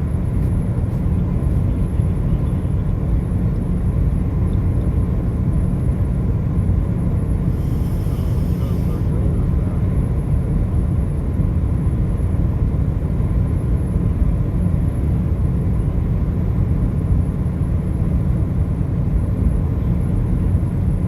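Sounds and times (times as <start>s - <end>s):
faint high whine: 7.3s - 10.2s.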